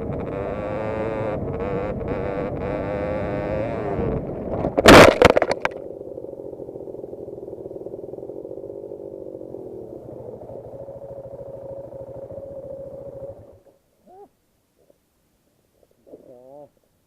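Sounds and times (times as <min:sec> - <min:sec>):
dirt bike crash impacts: 0:04.4 - 0:05.8
dirt bike engine idling: 0:05.1 - 0:13.7.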